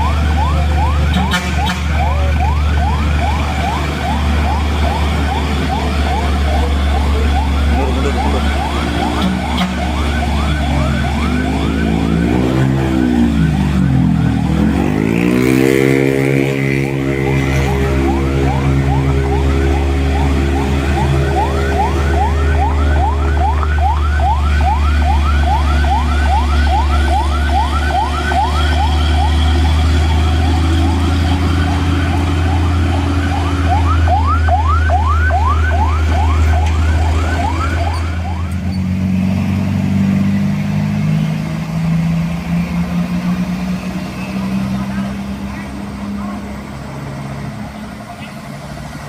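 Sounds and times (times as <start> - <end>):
truck diesel engine running: 0.0 - 14.8, 16.9 - 49.0
electronic warning siren whoops: 0.0 - 39.0.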